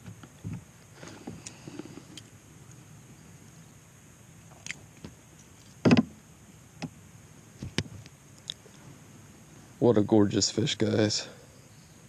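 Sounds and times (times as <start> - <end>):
knocks against boat hull: 5.8 - 6.2.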